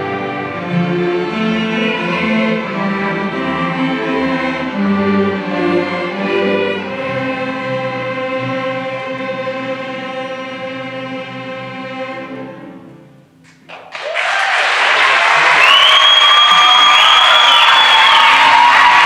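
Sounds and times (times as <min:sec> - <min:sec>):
string orchestra playing: 0:00.0 - 0:13.2.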